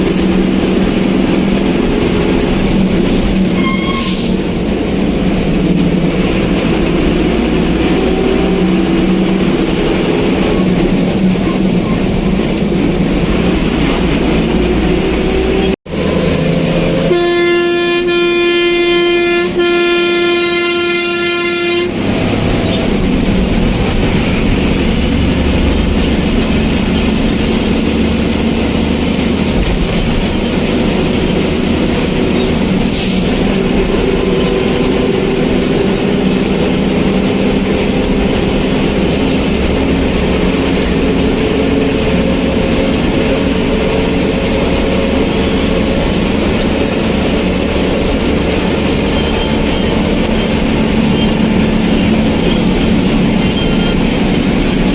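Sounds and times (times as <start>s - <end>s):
vehicle engine and road noise: 0.0s - 54.9s
vehicle horn blast: 16.9s - 22.3s.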